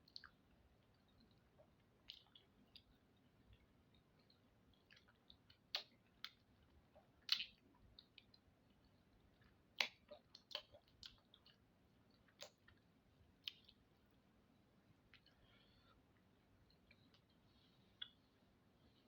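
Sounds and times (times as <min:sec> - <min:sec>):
lip smacks while chewing: 0:00.1 - 0:14.1, 0:18.0 - 0:18.2.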